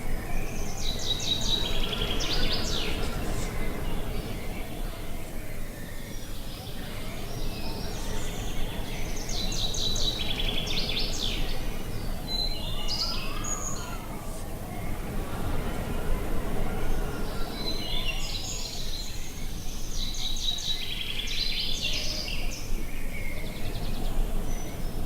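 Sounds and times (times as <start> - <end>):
low wind noise: 0.0 - 25.0
songbirds chirping and trilling: 0.0 - 25.0.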